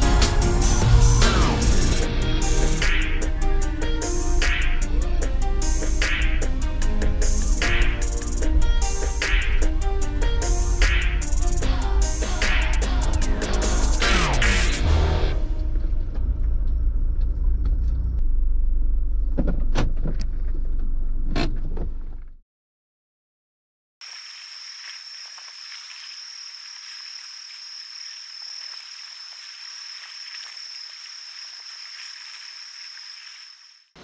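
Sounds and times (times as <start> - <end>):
low rumble: 11.7 - 21.3
insects chirring: 24.0 - 34.0.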